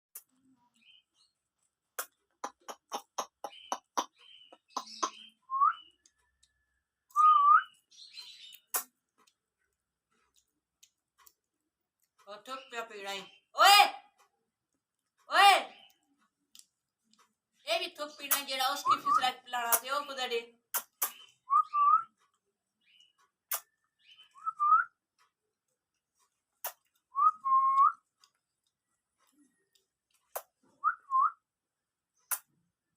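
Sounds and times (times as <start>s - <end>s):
sharp clicks: 20.7s - 21.4s.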